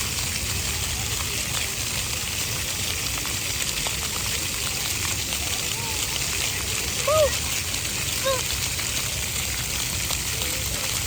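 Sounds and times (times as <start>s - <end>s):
fountain jets spraying water: 0.0s - 11.0s.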